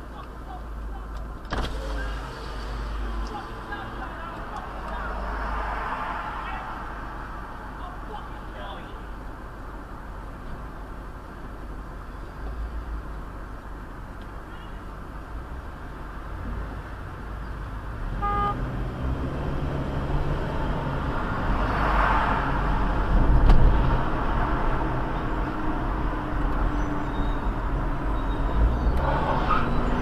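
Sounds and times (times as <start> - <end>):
vehicle engine and road noise: 0.0 - 30.0
short horn beep: 18.2 - 18.6.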